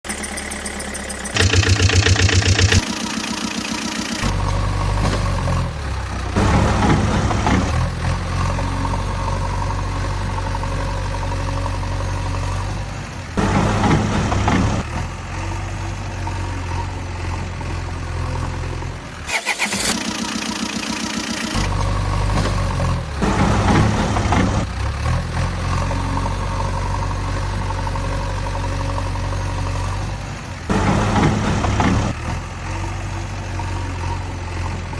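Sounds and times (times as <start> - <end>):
engine starting and idling: 0.0 - 9.7, 13.4 - 15.1, 19.2 - 28.5, 29.4 - 32.4
engine revving: 0.1 - 34.9.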